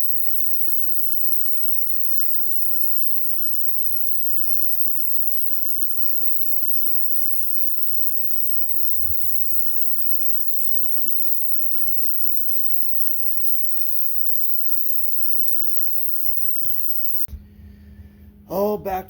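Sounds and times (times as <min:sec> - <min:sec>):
faint clicks: 0:00.0 - 0:17.3
high-pitched hiss: 0:00.0 - 0:17.3.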